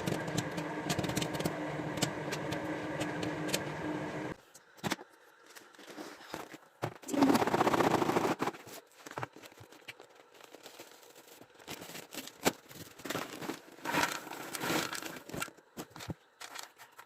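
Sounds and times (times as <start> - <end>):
paper bag crinkling and tearing: 7.2 - 17.0.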